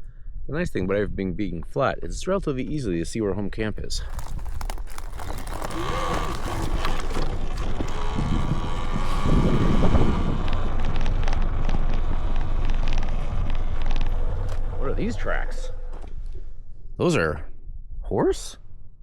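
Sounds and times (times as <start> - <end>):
wind on microphone: 3.7 - 16.5
tyre rumble: 3.8 - 16.4
rattling clicks: 4.0 - 10.4.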